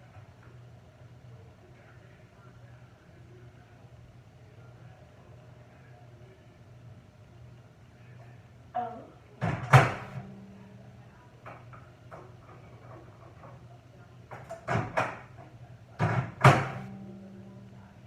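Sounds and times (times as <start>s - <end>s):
steady low hum: 0.0s - 18.0s
door clunking open and shut: 9.4s - 10.3s, 14.3s - 16.9s.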